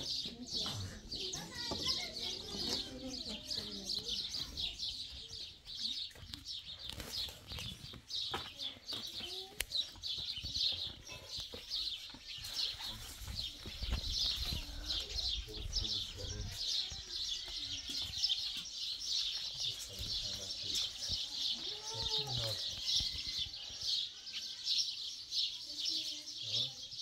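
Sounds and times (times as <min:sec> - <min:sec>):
small birds chirping busily: 0:00.0 - 0:27.0.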